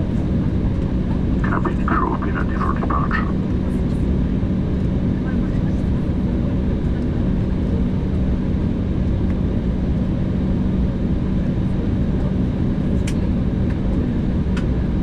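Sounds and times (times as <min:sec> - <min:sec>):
jet engine cabin rush: 0:00.0 - 0:05.8
low hum: 0:00.0 - 0:08.2.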